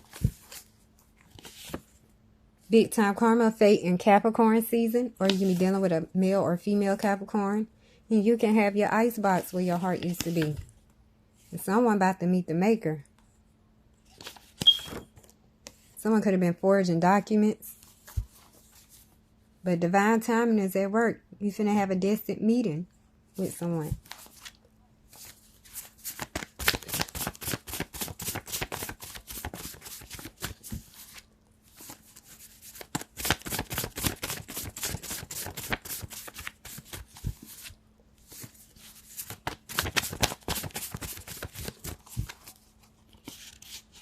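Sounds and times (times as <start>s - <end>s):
cards being shuffled: 24.0s - 44.0s.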